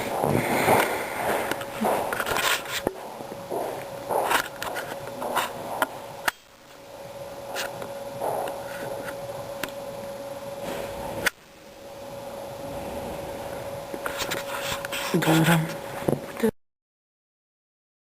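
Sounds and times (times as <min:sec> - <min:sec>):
faint steady hum: 0:00.0 - 0:16.6
claws scratching on a surface: 0:14.1 - 0:15.4.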